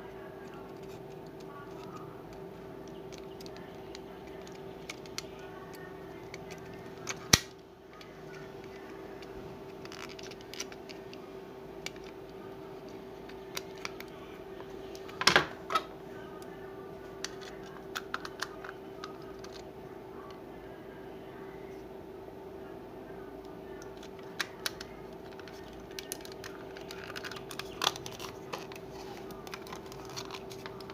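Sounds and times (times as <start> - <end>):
steady hum: 0.0 - 30.9
plastic mouse parts clicking: 2.8 - 11.2, 11.8 - 12.3, 17.2 - 19.6, 23.8 - 30.9.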